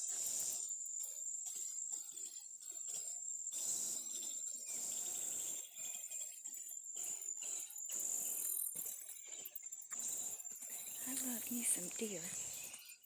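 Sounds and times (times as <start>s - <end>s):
high-pitched insect chorus: 10.6s - 12.8s.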